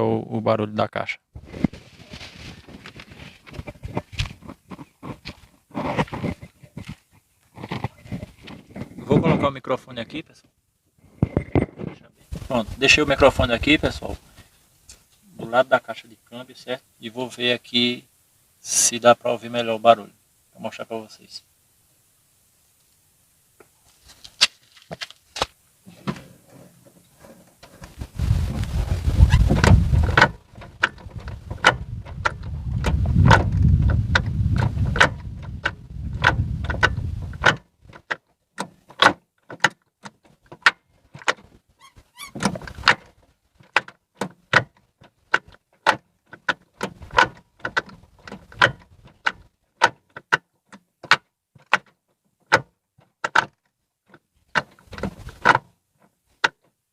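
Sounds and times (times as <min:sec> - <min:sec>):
gearbox metallic click-crack: 0:29.6 - 0:41.5, 0:42.3 - 0:55.7.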